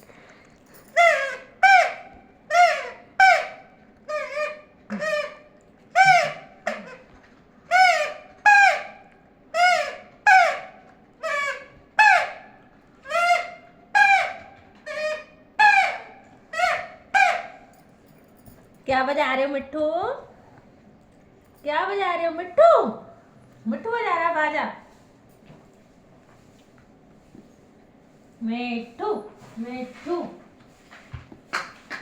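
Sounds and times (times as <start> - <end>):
parrot honking: 0.9 - 7.1, 7.7 - 17.7.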